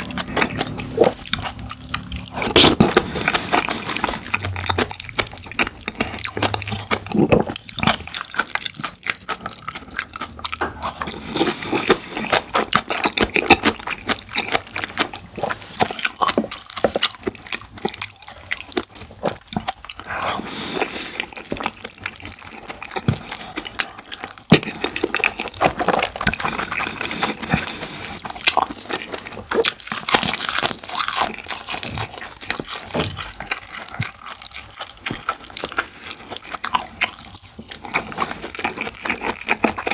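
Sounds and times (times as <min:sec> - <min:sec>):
wet chewing and slurping: 0:00.0 - 0:39.9.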